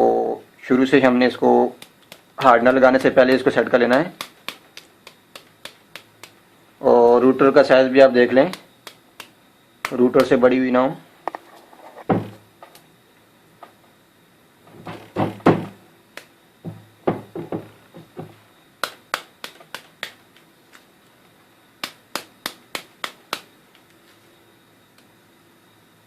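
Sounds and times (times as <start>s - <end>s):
rubber mallet knocking copper coils: 1.7s - 6.4s, 14.8s - 15.8s, 16.6s - 20.2s.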